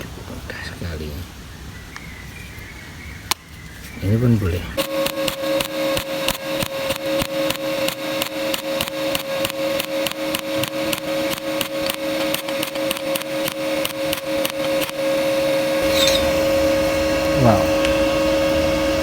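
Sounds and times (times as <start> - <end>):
electrical hum: 4.0 - 19.0
welding arc ticking: 4.8 - 15.1.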